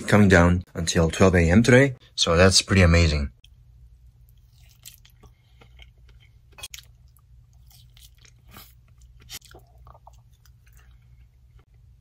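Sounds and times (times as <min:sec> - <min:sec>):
steady low hum: 0:00.0 - 0:12.0
person chewing: 0:03.4 - 0:12.0.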